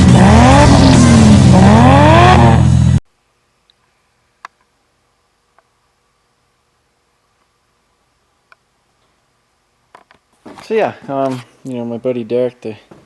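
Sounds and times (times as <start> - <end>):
engine revving hard: 0.0 - 3.0.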